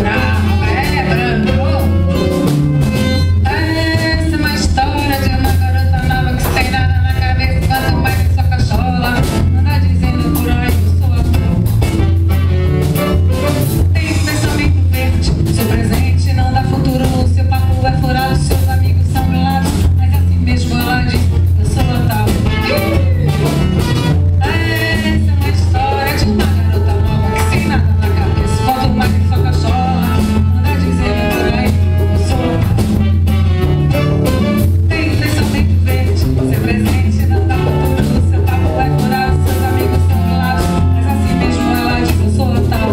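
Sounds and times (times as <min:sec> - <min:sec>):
bass line: 0:00.0 - 0:42.9
live band music: 0:00.0 - 0:42.9
percussion beats: 0:00.0 - 0:42.9.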